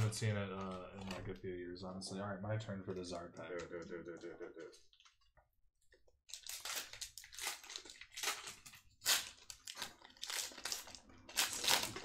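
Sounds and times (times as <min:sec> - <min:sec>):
foil wrapper torn and crinkled: 0:06.3 - 0:12.0.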